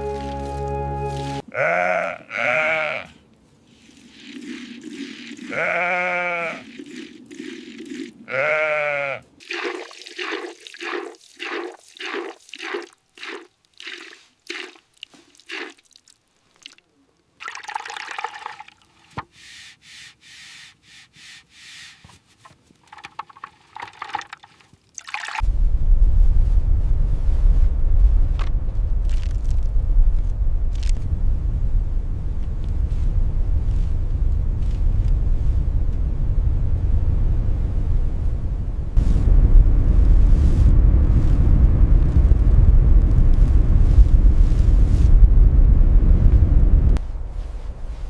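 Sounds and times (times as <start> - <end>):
sheep bleating: 1.5 - 3.2, 5.4 - 6.7, 8.3 - 9.3.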